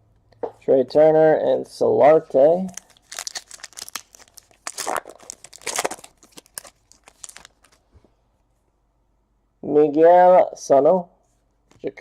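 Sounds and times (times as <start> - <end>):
cards rustling: 2.7 - 7.8.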